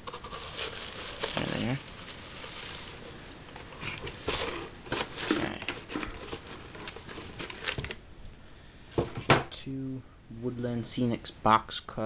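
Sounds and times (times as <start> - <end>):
light clicks and crinkles: 0.0 - 8.0
packaging rustling: 0.0 - 8.0.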